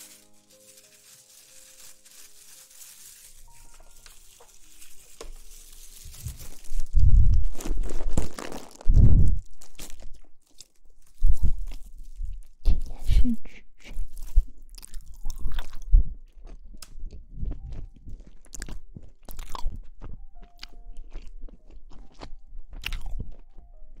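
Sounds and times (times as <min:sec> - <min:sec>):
rustling and crinkling on microphone: 0:00.0 - 0:13.0.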